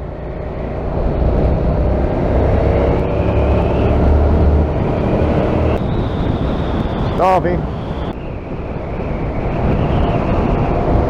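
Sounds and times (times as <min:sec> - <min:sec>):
motorcycle engine: 0:00.0 - 0:08.2
wind noise: 0:00.0 - 0:11.0.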